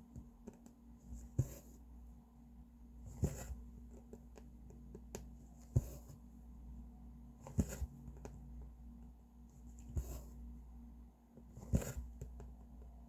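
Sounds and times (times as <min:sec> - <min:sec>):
small taps and clicks: 0:00.1 - 0:00.8.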